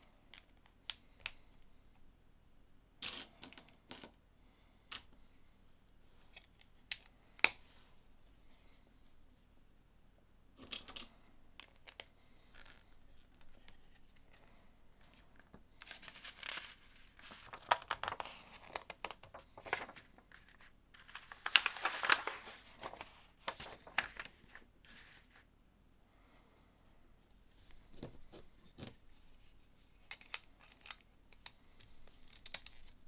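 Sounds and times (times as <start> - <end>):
plastic pieces clicking: 32.2 - 32.9.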